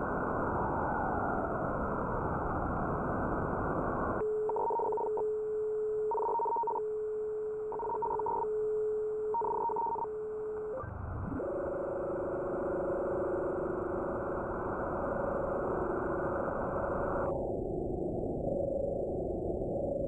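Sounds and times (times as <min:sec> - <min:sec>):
buzzing tone: 0:04.2 - 0:17.3
radio static hiss: 0:10.6 - 0:17.3.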